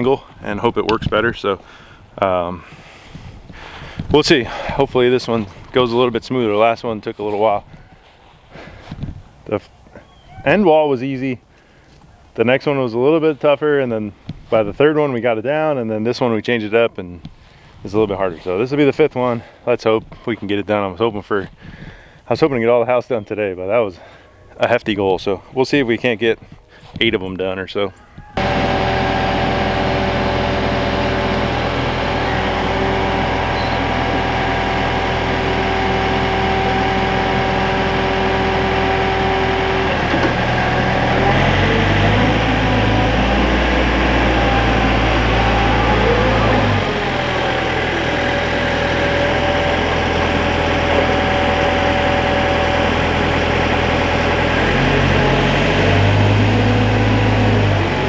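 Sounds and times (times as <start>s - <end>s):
construction machinery engine: 2.6s - 5.8s, 28.4s - 58.0s.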